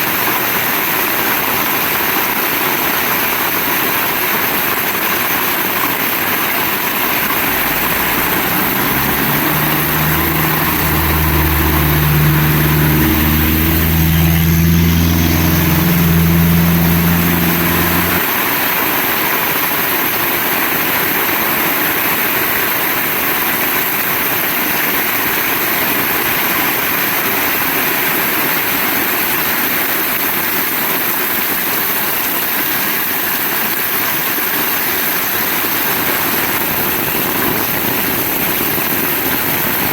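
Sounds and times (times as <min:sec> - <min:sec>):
low engine hum: 0:06.5 - 0:18.3.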